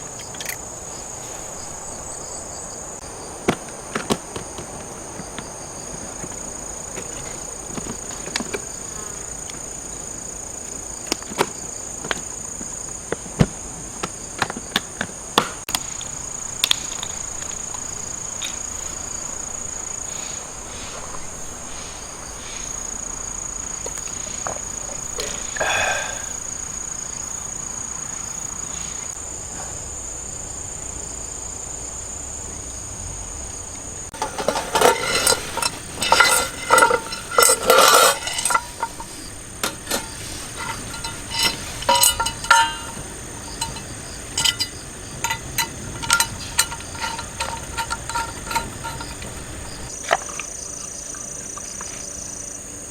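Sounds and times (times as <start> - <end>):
insects chirring: 0.0 - 52.9
sharp clicks and knocks: 34.2 - 49.9.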